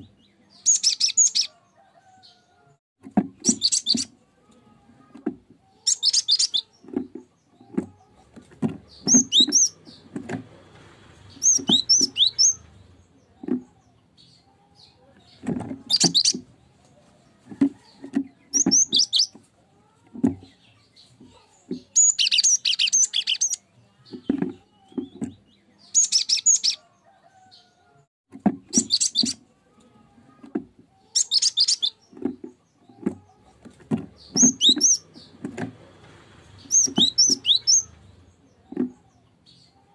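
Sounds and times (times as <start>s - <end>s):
bird chirping and whistling: 3.4s - 4.1s, 9.0s - 9.7s, 11.4s - 12.6s, 18.5s - 19.3s, 22.0s - 23.6s, 28.7s - 29.4s, 31.2s - 32.0s, 34.3s - 35.0s, 36.7s - 37.9s.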